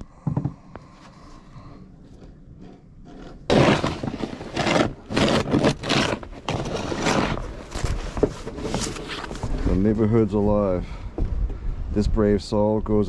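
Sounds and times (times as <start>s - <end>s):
snow shovel scraping pavement: 3.5s - 9.8s.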